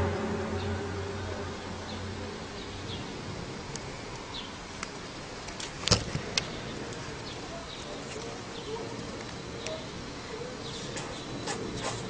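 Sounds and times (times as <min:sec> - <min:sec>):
low drone: 0:00.0 - 0:05.5.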